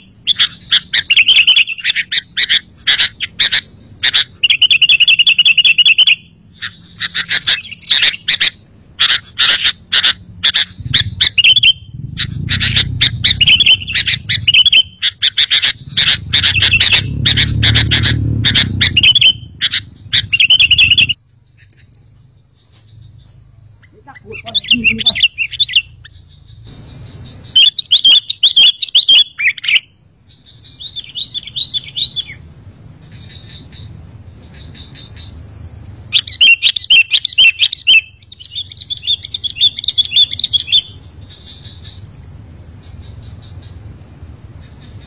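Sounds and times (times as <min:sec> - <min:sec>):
bulbul chirping and trilling: 0:00.0 - 0:21.8, 0:22.6 - 0:32.4, 0:33.0 - 0:43.8
low rumble: 0:10.6 - 0:27.6.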